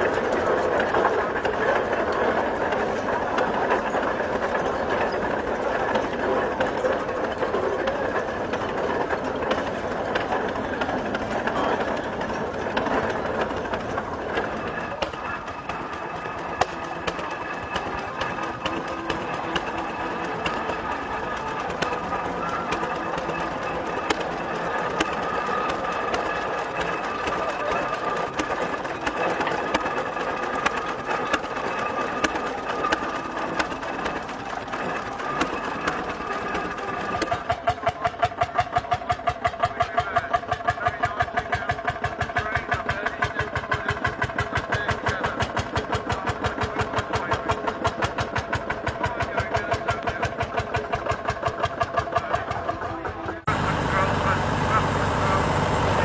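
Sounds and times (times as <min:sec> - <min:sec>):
machinery: 0:00.0 - 0:56.0
engine running with even beat: 0:09.5 - 0:37.3, 0:52.3 - 0:56.0
background voices: 0:53.0 - 0:56.0.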